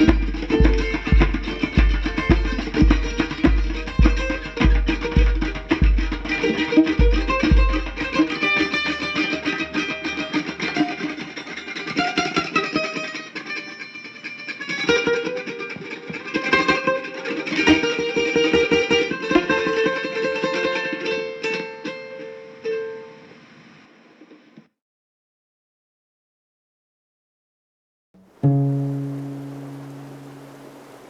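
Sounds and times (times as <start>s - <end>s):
guitar music: 28.2s - 31.0s.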